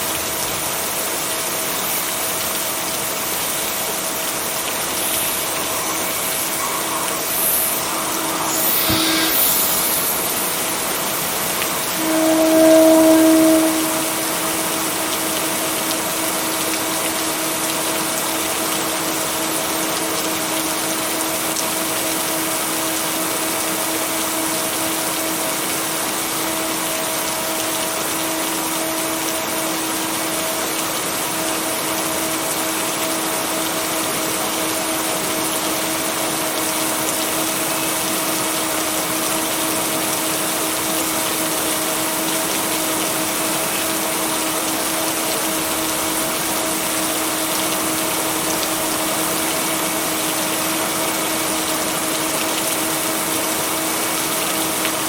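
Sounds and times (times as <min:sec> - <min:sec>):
heavy rain hiss: 0:00.0 - 0:55.0
low droning tone: 0:04.7 - 0:15.3.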